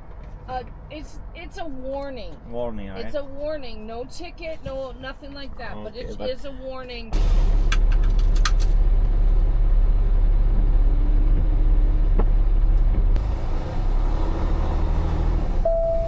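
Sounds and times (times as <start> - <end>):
truck engine and road rumble: 0.0 - 16.0.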